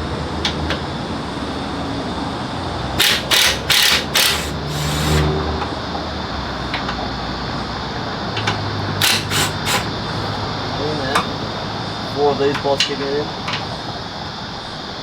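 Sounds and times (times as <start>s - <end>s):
steady motor hum: 0.0s - 6.3s, 7.0s - 12.6s
cordless impact wrench hammering: 3.0s - 5.2s, 8.4s - 9.9s.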